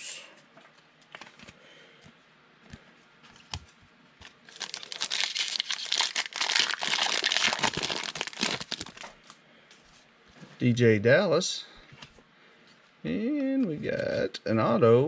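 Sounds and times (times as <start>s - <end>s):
foil wrapper tearing and crinkling: 4.2s - 9.2s
foil wrapper clicking: 4.5s - 9.2s.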